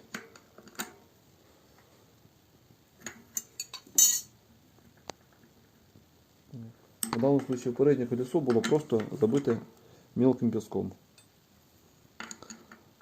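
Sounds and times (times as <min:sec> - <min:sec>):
metal clank: 0:03.4 - 0:04.3
wrenches clinking on metal: 0:03.4 - 0:04.3.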